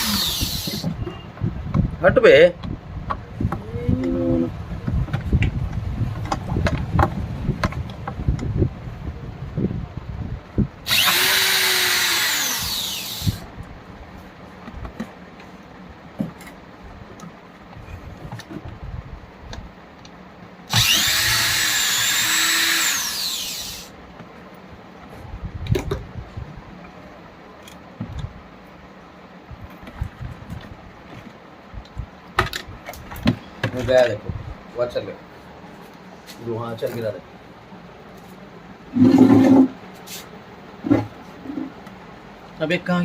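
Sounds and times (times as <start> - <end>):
electric blower motor whining: 0.0 - 1.0, 10.9 - 13.5, 20.7 - 23.9.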